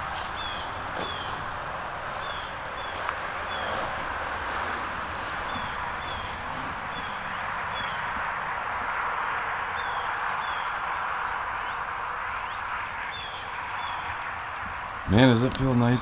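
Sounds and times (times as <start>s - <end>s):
small birds chirping: 0.0s - 16.0s
steady background hiss: 8.2s - 16.0s.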